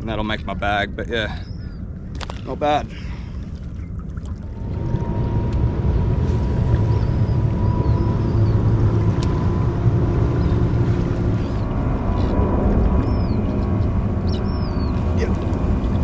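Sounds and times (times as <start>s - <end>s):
boat motor humming: 0.0s - 16.0s.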